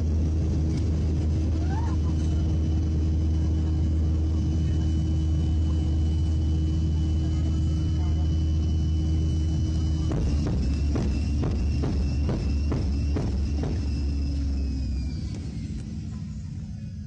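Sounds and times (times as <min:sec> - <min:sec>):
airliner cabin drone: 0:00.0 - 0:17.0
sharp bangs: 0:09.9 - 0:15.6.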